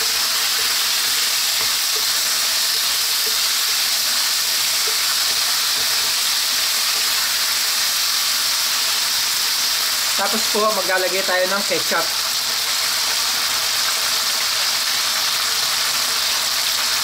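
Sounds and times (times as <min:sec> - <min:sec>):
pork sizzling in a wok: 0:00.0 - 0:17.0
wooden spatula stirring: 0:00.6 - 0:06.2.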